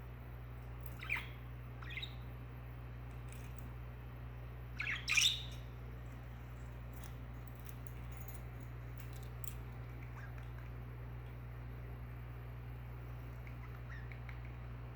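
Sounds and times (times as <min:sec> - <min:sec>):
steady low hum: 0:00.0 - 0:14.9
budgerigar chirp: 0:01.0 - 0:02.2, 0:04.8 - 0:05.6, 0:13.4 - 0:14.4.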